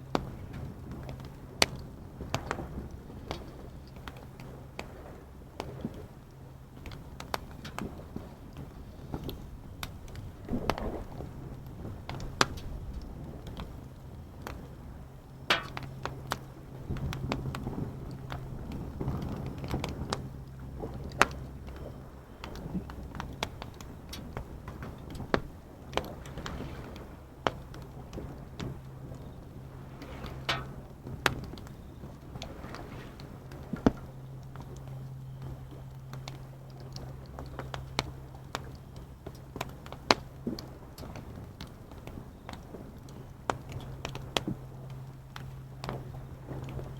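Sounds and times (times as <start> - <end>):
steady low hum: 0.0 - 46.9
waves washing: 2.1 - 34.3
campfire crackling and popping: 9.2 - 21.4.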